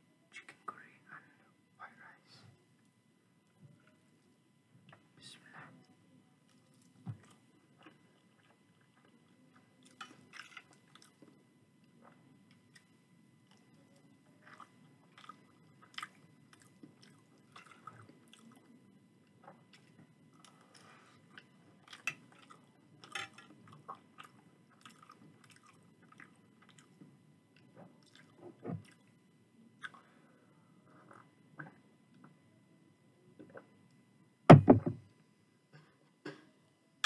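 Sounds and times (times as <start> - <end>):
wet chewing: 14.4 - 18.7, 23.3 - 27.0
deep thump: 34.5 - 35.0.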